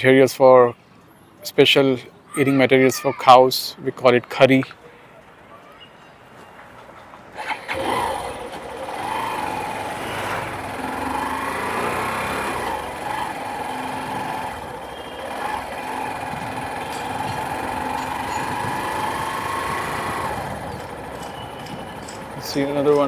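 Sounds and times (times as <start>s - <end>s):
motorcycle engine running: 7.4s - 23.0s.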